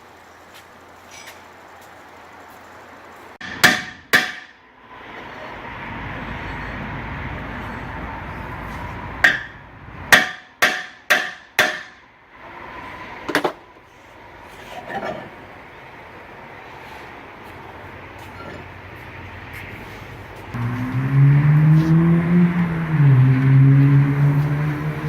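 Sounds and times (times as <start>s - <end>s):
hammer striking metal: 3.4s - 4.6s, 9.2s - 12.0s
steady whirring noise: 19.0s - 25.0s.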